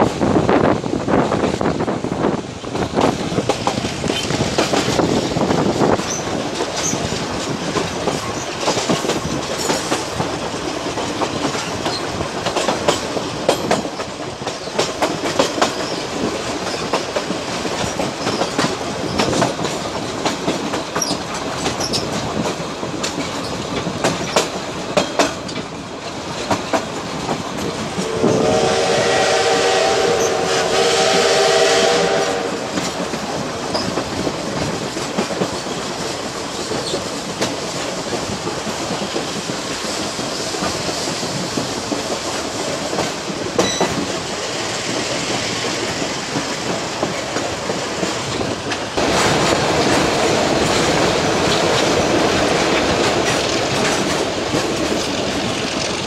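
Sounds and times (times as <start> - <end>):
train rumbling on rails: 0.0 - 56.0
wheels clicking over rail joints: 1.3 - 28.2, 32.7 - 56.0
train horn chord: 28.0 - 32.8.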